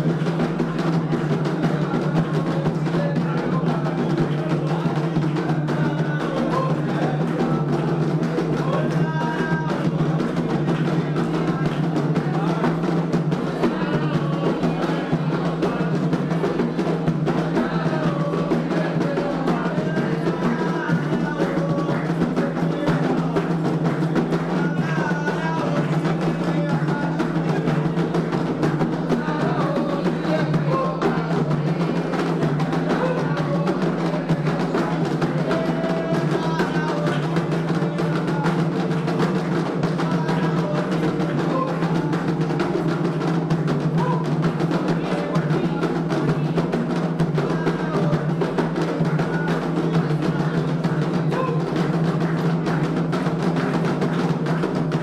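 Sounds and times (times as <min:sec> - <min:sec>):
hand drums playing a rhythm: 0:00.0 - 0:55.0.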